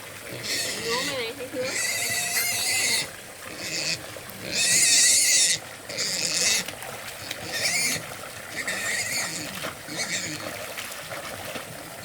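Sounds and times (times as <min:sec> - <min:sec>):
pig squealing: 0:00.4 - 0:06.6, 0:07.4 - 0:10.4.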